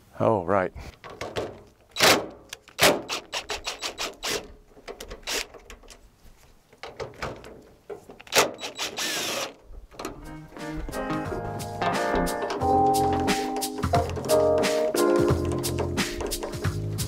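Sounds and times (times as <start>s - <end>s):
drill bit clicking on metal: 2.0s - 6.0s, 8.2s - 10.1s
cordless drill running: 3.1s - 4.5s, 8.3s - 9.6s.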